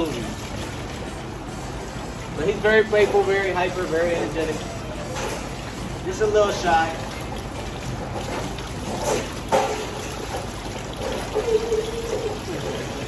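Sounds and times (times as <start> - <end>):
water running and splashing: 3.7 - 13.0.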